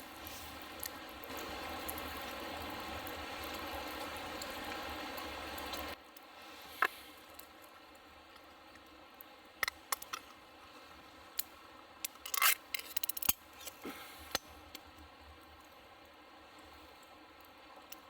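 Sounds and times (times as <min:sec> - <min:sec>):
small hard objects clicking: 0:09.6 - 0:10.3.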